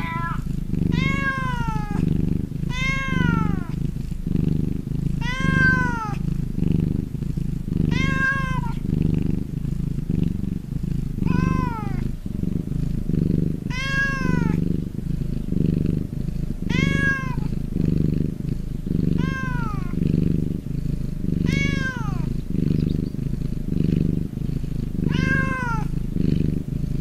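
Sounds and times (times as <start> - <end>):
cat meowing: 0.0 - 2.0, 2.7 - 3.8, 5.2 - 6.2, 7.9 - 8.8, 11.2 - 12.0, 13.7 - 14.6, 16.6 - 17.5, 19.1 - 20.0, 21.4 - 23.0, 25.0 - 26.0
cat purring: 0.0 - 27.0.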